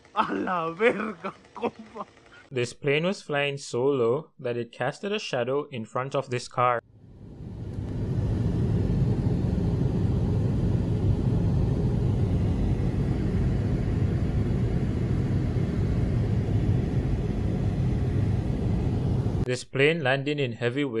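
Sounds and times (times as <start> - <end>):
airliner rumbling overhead: 6.9 - 19.5.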